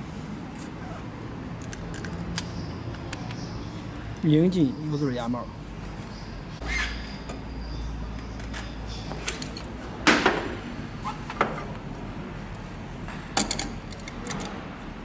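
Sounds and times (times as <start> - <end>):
metal tools clinking and knocking: 1.6 - 3.4, 13.4 - 14.6.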